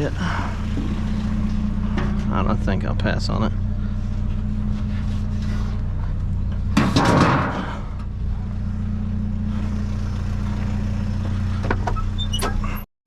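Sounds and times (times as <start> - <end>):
vehicle engine idling: 0.0 - 12.9
loud clatter: 6.6 - 7.9.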